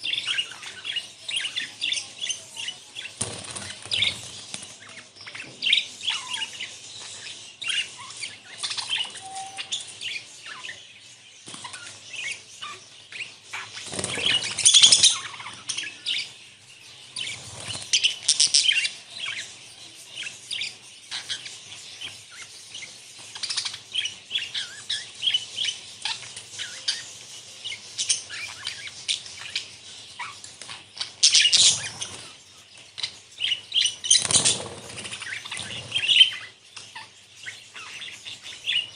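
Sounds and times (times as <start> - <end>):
budgerigars chirping: 0.0 - 38.9
wings flapping: 3.2 - 4.8, 13.8 - 15.1, 34.1 - 36.0.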